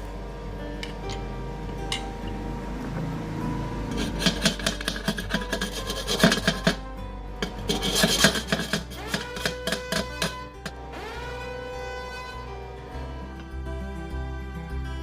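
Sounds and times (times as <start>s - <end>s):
background music with held notes: 0.0s - 15.0s
hand tool scraping metal: 3.9s - 6.8s, 7.4s - 10.8s.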